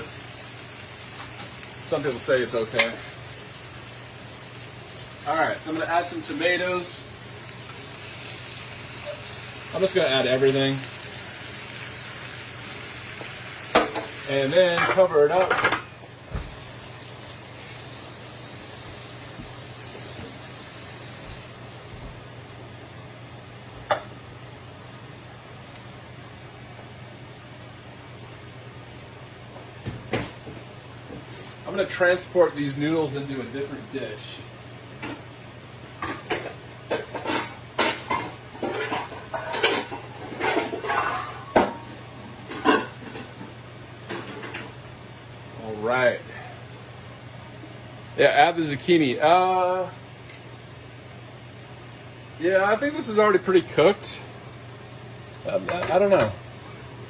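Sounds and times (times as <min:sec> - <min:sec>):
food sizzling in frying pan: 0:00.0 - 0:14.6, 0:16.3 - 0:22.2
utensil scraping and clinking dish: 0:36.1 - 0:41.9.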